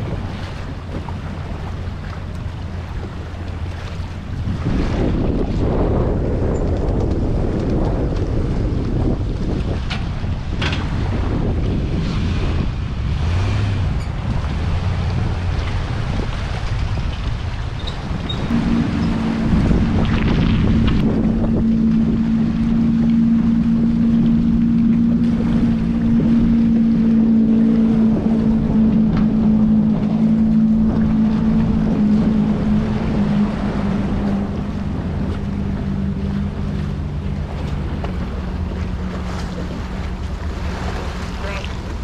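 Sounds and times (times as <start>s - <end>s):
choppy water: 0.0s - 42.0s
outboard engine running: 0.0s - 42.0s
wind buffeting microphone: 0.0s - 42.0s.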